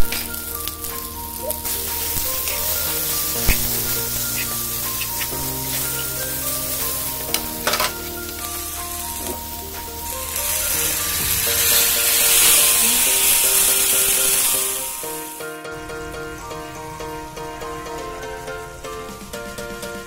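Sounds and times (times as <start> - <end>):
food sizzling in a frying pan: 0.0 - 15.4
liquid poured into hot pan hissing: 0.0 - 15.4.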